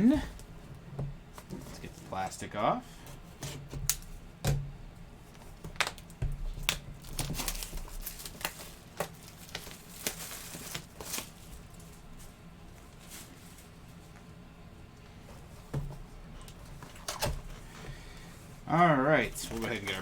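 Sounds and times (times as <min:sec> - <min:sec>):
plastic shrink-wrap tearing: 0:05.7 - 0:12.1, 0:19.1 - 0:20.0.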